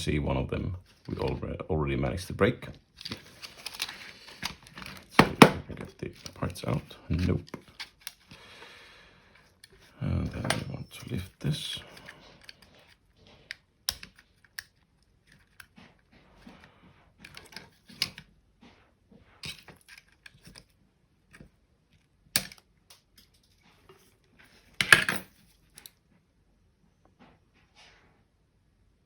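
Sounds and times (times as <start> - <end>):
plastic parts clattering: 2.9 - 8.7, 9.3 - 18.3
plastic mouse parts clicking: 11.8 - 15.8, 22.4 - 23.4.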